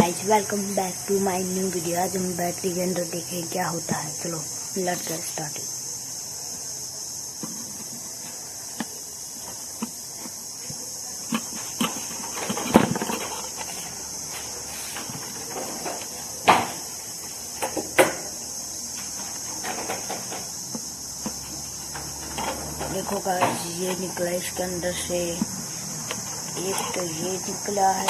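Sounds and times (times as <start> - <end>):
crickets chirring: 0.0 - 28.0.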